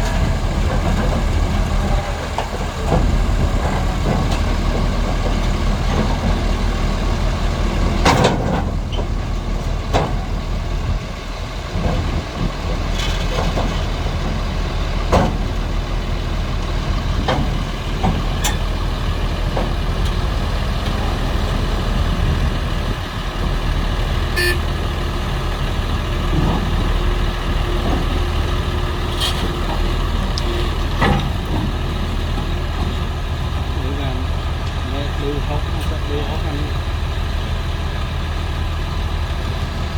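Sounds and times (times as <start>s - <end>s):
heavy diesel engine running: 0.0s - 39.9s
knocks and clanks: 8.0s - 10.3s.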